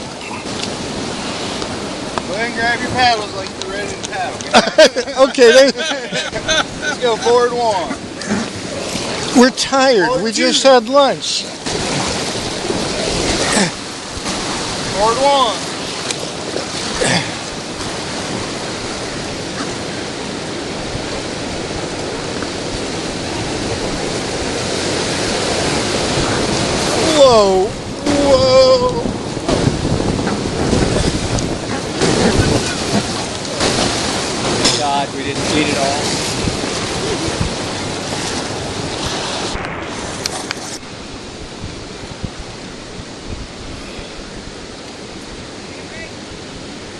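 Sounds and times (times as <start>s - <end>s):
water splash: 0.0s - 42.6s
whitewater rushing: 0.0s - 46.9s
wind on microphone: 11.5s - 34.7s, 35.3s - 46.9s
sharp splashes or knocks: 11.6s - 18.8s, 29.4s - 40.9s.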